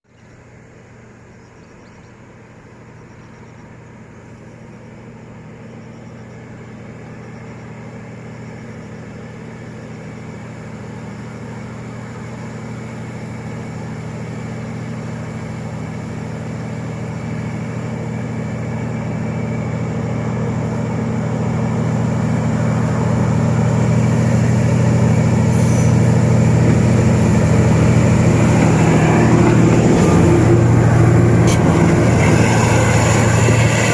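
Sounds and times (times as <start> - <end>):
diesel locomotive engine drone: 0.0 - 33.9.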